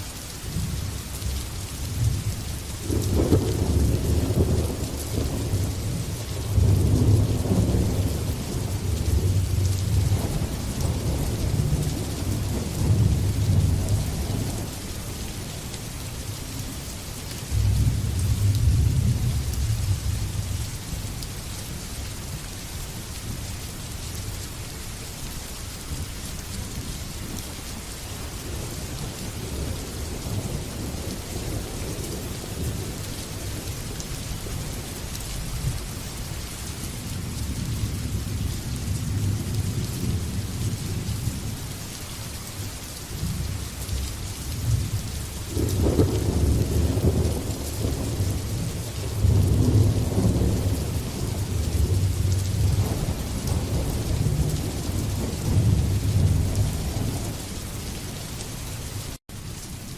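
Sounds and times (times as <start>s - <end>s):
steady rain: 0.0s - 59.9s
thunder rumbling: 2.8s - 14.9s, 44.6s - 57.9s.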